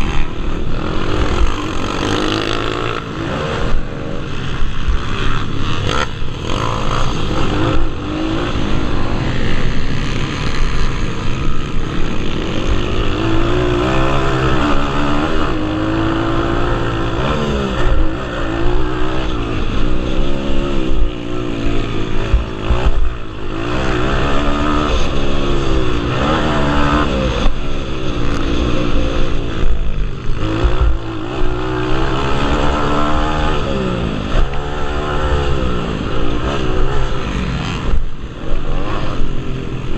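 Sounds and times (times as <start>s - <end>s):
motorbike engines revving: 0.0s - 39.9s.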